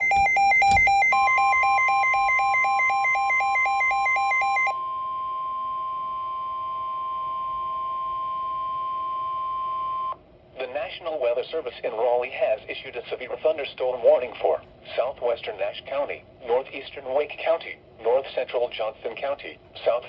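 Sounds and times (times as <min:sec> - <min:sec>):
rapid alternating alarm beeps: 0:00.0 - 0:04.8
steady warning alarm tone: 0:00.0 - 0:10.2.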